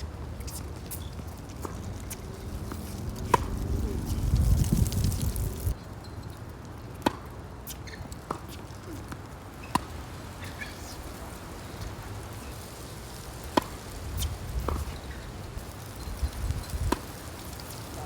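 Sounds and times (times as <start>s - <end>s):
tennis racket hitting ball: 0.5s - 3.5s, 13.5s - 15.2s, 16.9s - 17.3s
tennis ball bouncing: 0.5s - 3.6s, 7.0s - 12.6s, 13.4s - 15.3s, 16.7s - 17.5s
wind rumble on microphone: 1.5s - 5.8s, 11.3s - 18.0s.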